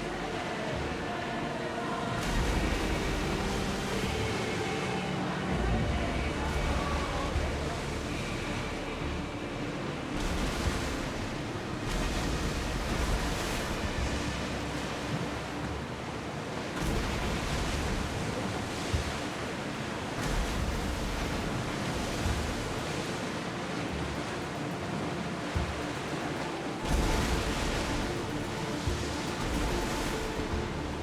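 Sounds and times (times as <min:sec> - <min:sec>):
sea waves and rushing water: 0:00.0 - 0:31.0.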